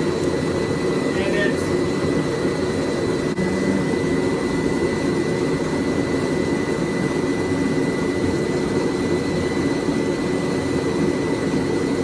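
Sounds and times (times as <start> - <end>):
forge roaring: 3.3 - 5.0.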